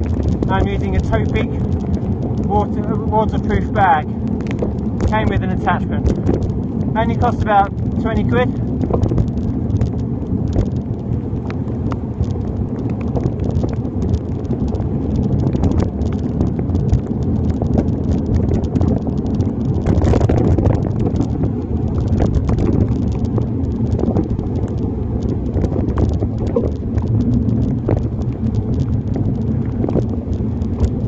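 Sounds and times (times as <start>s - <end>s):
raindrops tapping on a bag: 0.0s - 31.0s
wind and road noise: 0.0s - 31.0s.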